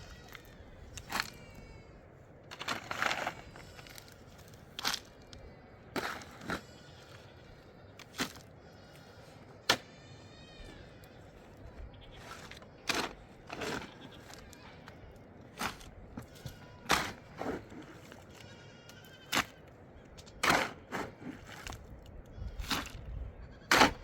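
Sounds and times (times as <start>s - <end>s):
sharp knocks and crunches: 2.5s - 6.8s, 8.0s - 8.5s, 12.1s - 14.7s, 15.4s - 18.5s, 19.2s - 19.6s, 20.2s - 21.9s, 22.5s - 24.0s.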